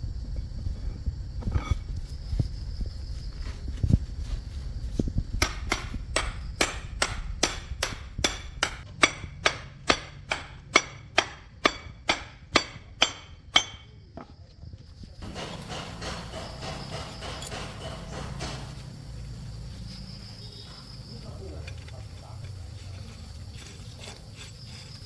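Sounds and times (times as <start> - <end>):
hammer striking metal: 5.4 - 13.9, 15.2 - 18.9
dull knocks: 15.2 - 19.0.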